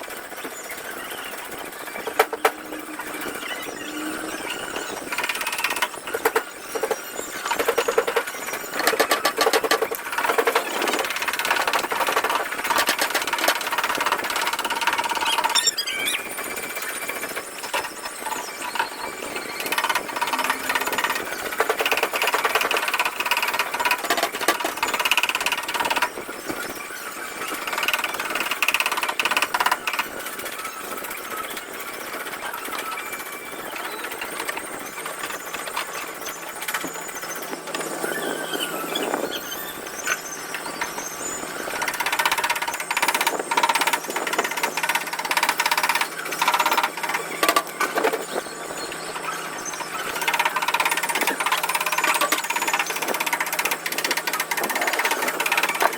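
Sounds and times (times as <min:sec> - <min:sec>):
high whine: 0:00.0 - 0:27.6.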